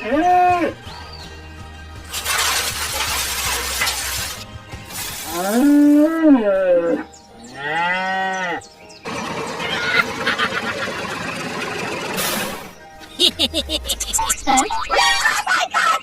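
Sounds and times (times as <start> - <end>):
cow mooing: 5.4 - 8.6.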